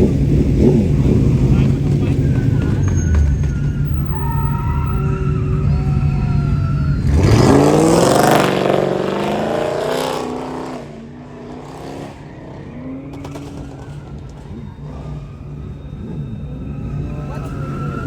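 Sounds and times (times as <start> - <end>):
vehicle engine revving: 0.0 - 18.0.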